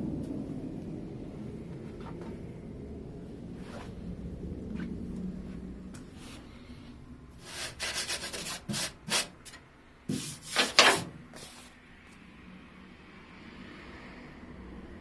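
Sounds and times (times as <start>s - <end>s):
sandpaper rubbing on metal: 7.4s - 11.7s.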